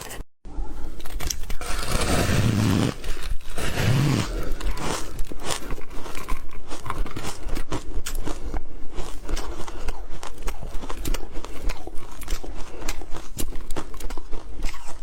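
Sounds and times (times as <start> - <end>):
ice crunching being chewed: 4.2 - 15.0.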